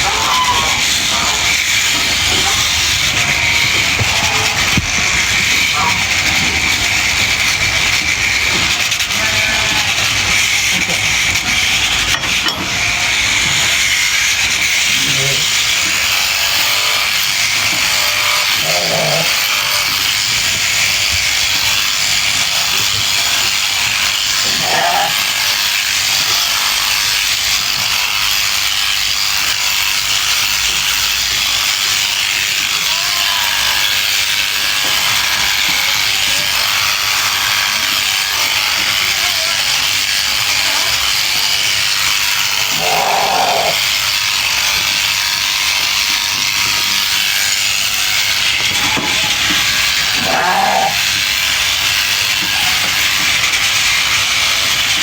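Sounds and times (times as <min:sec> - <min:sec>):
sheep bleating: 0:00.0 - 0:07.2, 0:07.9 - 0:11.4, 0:14.8 - 0:20.2, 0:21.8 - 0:27.0, 0:32.6 - 0:44.3, 0:48.3 - 0:54.4
sheep-shearing clippers hissing: 0:00.0 - 0:55.0.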